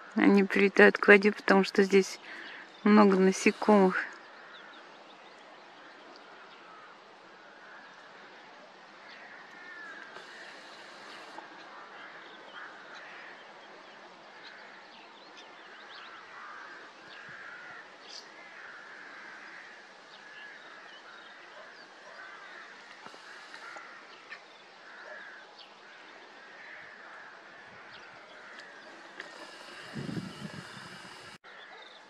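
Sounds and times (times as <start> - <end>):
background hiss: 1.2 - 31.6
birds calling: 9.0 - 32.0.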